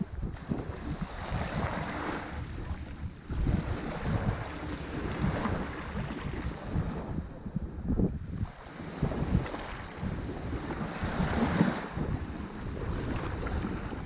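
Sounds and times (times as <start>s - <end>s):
ocean waves breaking on shore: 0.0s - 14.0s
wind buffeting microphone: 0.0s - 14.0s.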